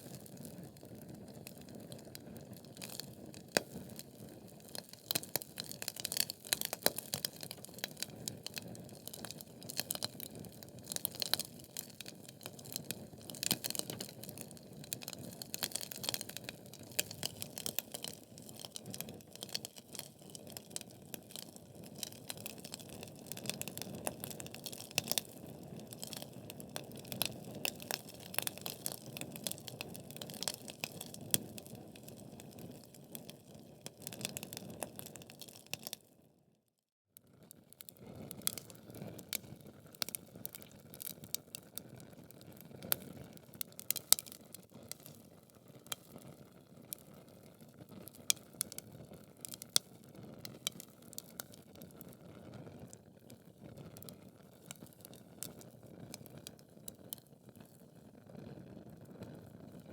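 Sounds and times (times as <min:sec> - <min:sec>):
wood fire crackling: 0:00.0 - 0:36.0, 0:38.3 - 0:47.1, 0:47.9 - 0:52.2, 0:54.0 - 0:57.3
sharp pops and snaps: 0:04.6 - 0:33.2, 0:38.3 - 0:45.2, 0:48.2 - 0:48.8, 0:49.4 - 0:51.6.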